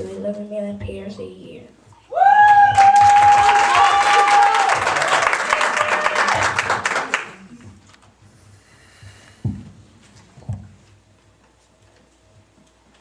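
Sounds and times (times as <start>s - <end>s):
audience applause: 2.3s - 7.6s.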